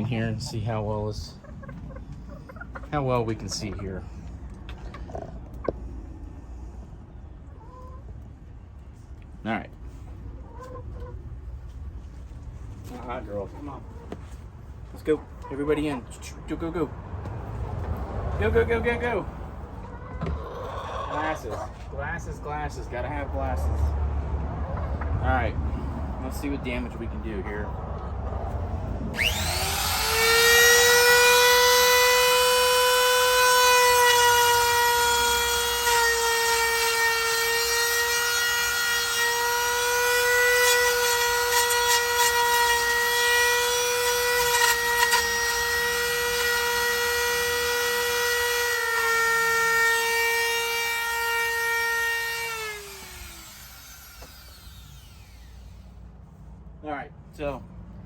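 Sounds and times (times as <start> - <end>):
wood router whine: 29.1 - 55.8.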